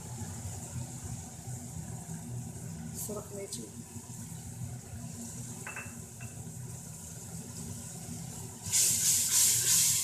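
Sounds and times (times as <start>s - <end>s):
masala frying in oil: 0.0s - 10.0s
loud sizzling hiss: 6.5s - 10.0s.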